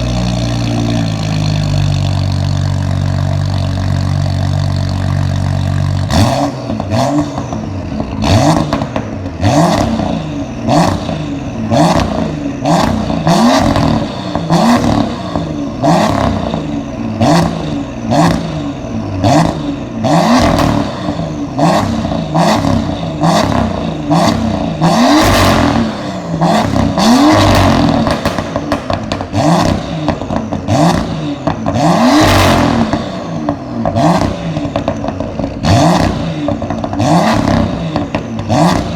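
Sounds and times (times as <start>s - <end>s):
car engine revving: 0.0s - 38.9s
exhaust pops and crackles: 26.6s - 38.9s.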